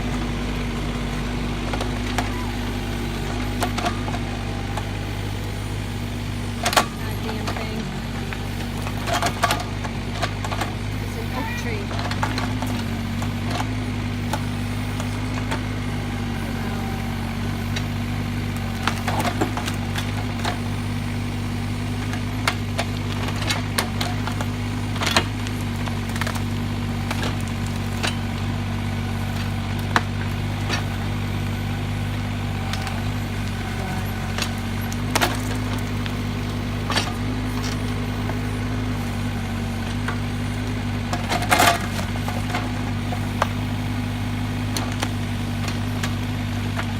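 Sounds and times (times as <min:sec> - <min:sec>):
diesel excavator engine running: 0:00.0 - 0:46.9
wood cracking and snapping: 0:17.6 - 0:46.9.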